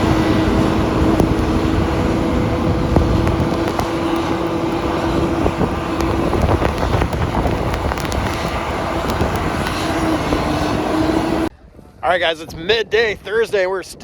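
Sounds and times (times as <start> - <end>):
vehicle engine rumble: 0.0 - 11.8
wind noise: 0.0 - 14.0.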